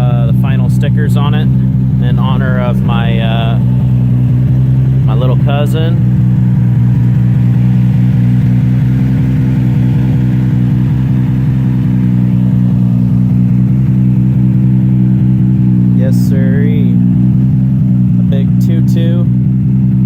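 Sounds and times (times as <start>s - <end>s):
race car engine idling loudly: 0.0s - 20.0s.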